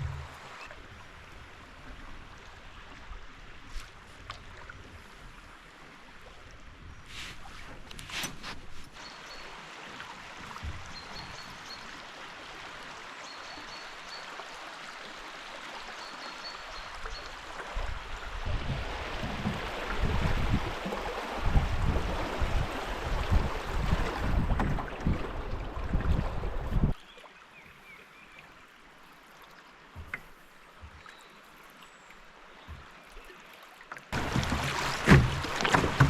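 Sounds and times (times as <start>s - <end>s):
flowing water: 0.0s - 36.0s
wind buffeting microphone: 17.8s - 27.0s.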